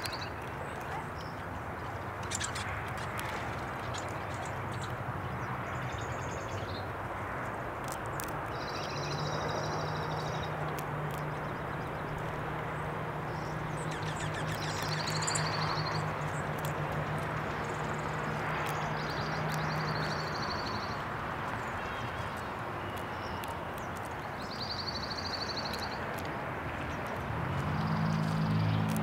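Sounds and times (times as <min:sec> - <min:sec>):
small birds calling: 0:00.0 - 0:29.0
sharp clicks: 0:13.4 - 0:20.6.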